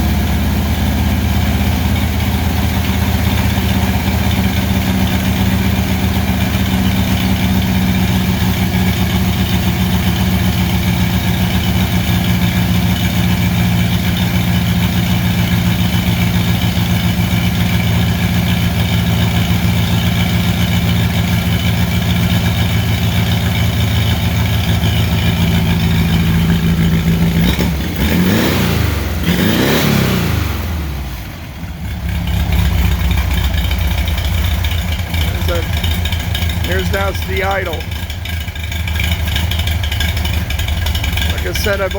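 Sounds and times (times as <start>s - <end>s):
car engine idling and revving: 0.0s - 41.9s.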